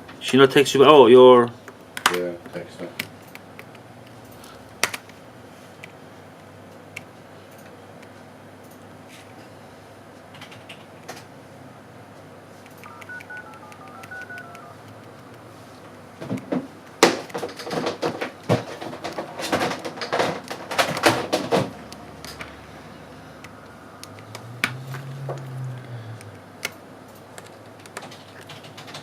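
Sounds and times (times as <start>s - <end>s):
phone keypad dual-tone beeps: 12.8s - 14.8s
loud sharp clicks and knocks: 16.2s - 22.5s.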